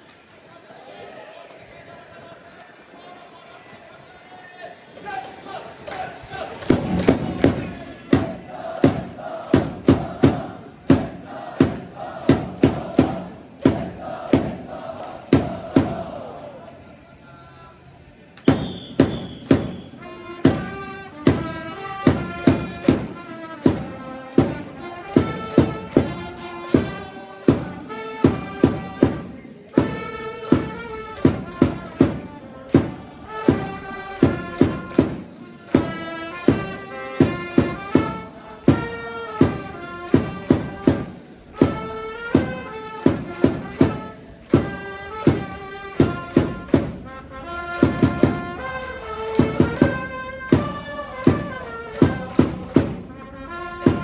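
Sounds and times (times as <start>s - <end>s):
fans chanting: 0.3s - 54.0s
trumpets playing cheer song: 5.1s - 16.5s, 18.4s - 54.0s
driving drum beat: 6.7s - 16.1s, 18.5s - 47.1s, 47.8s - 48.7s, 49.3s - 53.1s.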